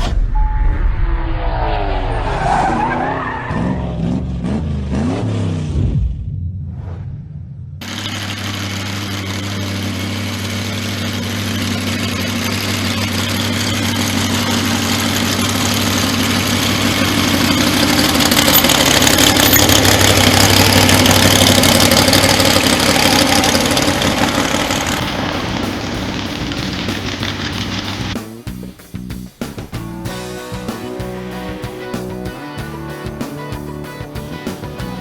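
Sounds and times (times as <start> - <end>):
car engine running: 7.5 - 35.0.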